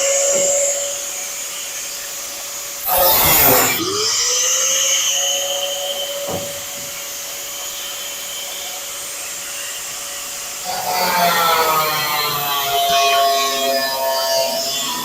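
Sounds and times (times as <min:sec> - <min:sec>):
cut-off tool whining: 0:02.0 - 0:15.0
cut-off tool cutting sheet metal: 0:02.8 - 0:05.3
knock: 0:06.3 - 0:07.0.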